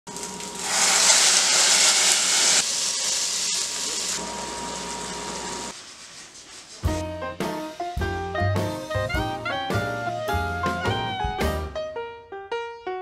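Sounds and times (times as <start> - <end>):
food sizzling in pots: 0.1 - 7.0.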